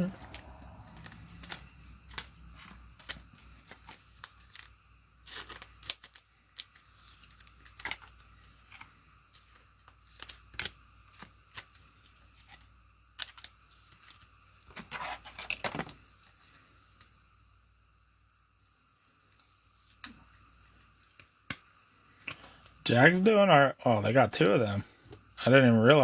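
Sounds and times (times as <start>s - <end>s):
plastic card sleeves crinkling: 0.0s - 16.6s.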